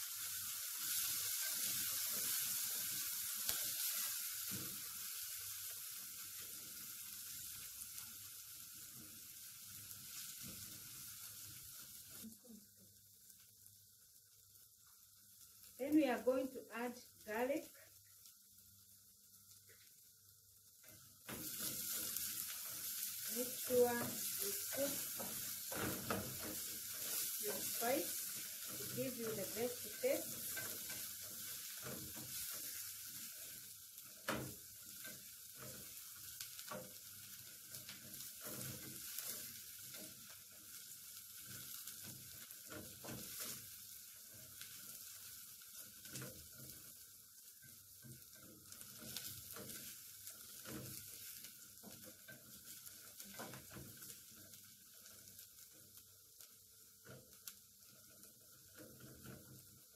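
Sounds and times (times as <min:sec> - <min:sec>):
onions and garlic sizzling in oil: 0:00.0 - 0:59.9
wooden spoon scraping a pot: 0:21.0 - 0:46.9, 0:48.1 - 0:55.3.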